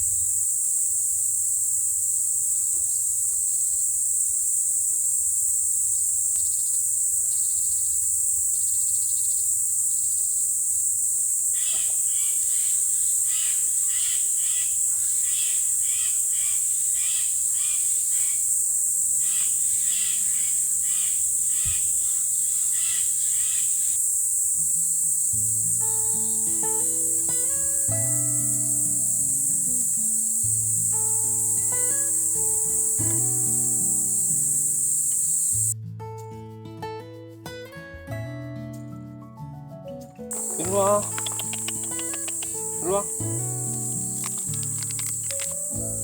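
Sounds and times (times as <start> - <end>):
insect chorus: 0.0 - 35.8, 40.3 - 46.0
short chirps: 40.3 - 45.6.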